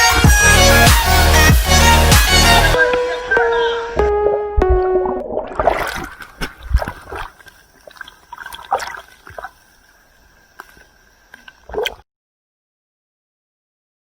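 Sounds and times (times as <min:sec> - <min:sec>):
water splashing and sloshing: 0:04.6 - 0:12.0
water trickling: 0:04.8 - 0:12.0.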